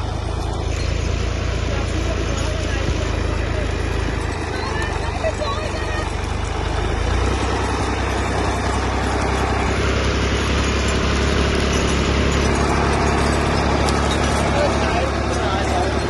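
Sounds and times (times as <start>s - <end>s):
tractor engine droning: 0.0s - 16.0s.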